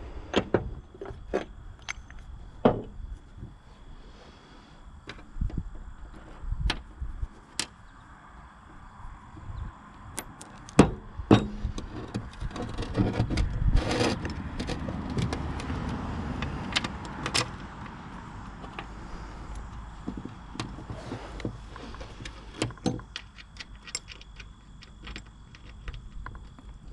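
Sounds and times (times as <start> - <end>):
rattling and scraping: 10.2 - 26.9.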